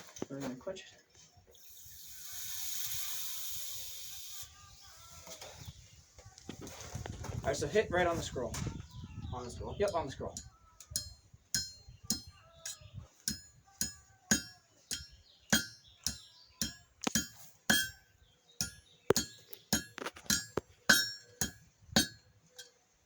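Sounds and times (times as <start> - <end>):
hammer striking steel on anvil: 9.9 - 18.0, 18.6 - 22.7.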